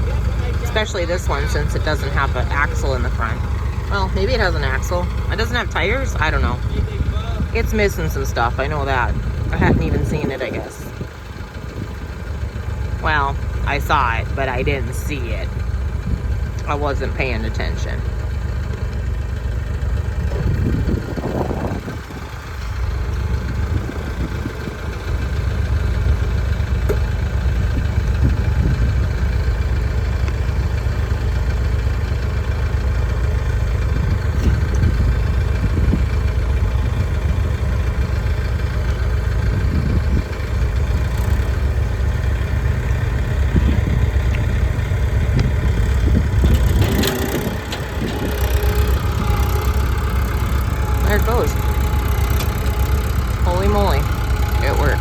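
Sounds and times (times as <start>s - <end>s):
car being dragged: 0.0s - 10.9s, 33.8s - 55.0s
tractor diesel engine running: 0.0s - 55.0s
metal clunks and creaks: 45.3s - 55.0s.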